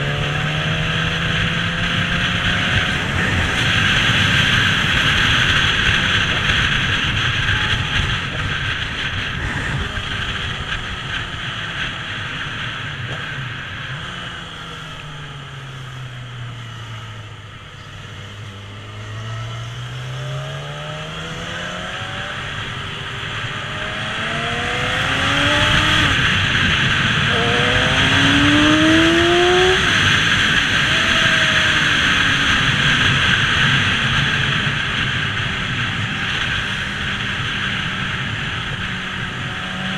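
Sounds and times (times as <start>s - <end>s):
motorcycle engine: 0.0s - 39.9s
wind rushing over microphone: 0.0s - 39.9s.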